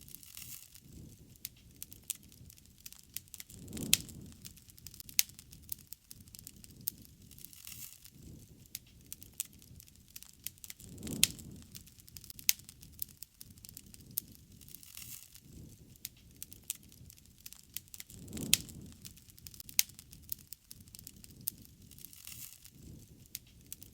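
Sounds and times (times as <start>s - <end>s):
campfire crackling and popping: 0.0s - 23.9s
low soft rush: 3.4s - 5.6s, 10.7s - 12.8s, 18.0s - 20.2s.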